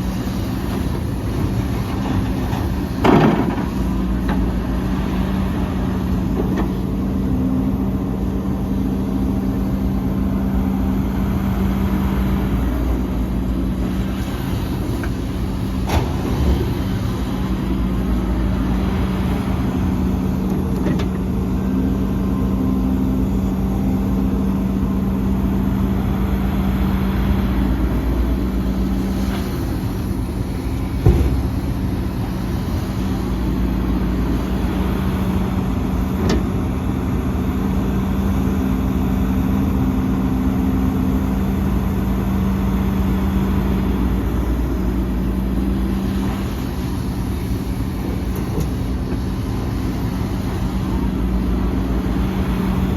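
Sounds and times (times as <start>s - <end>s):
heavy diesel machinery running: 0.0s - 52.9s.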